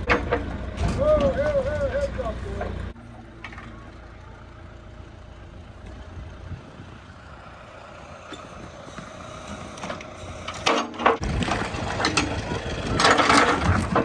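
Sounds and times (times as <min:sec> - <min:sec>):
metallic clanking and squealing: 0:00.0 - 0:03.9, 0:08.1 - 0:14.0
backhoe engine rumbling: 0:00.0 - 0:14.0.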